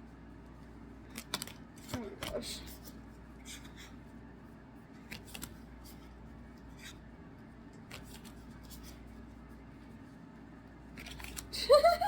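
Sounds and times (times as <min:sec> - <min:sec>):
low steady hum: 0:00.0 - 0:12.0
trading cards rustling: 0:01.0 - 0:04.0, 0:05.0 - 0:06.1, 0:07.8 - 0:09.1, 0:10.9 - 0:11.6.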